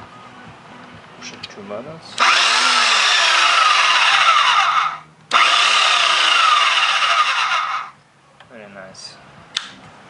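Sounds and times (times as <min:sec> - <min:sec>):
bandsaw motor whining: 0:02.2 - 0:08.0.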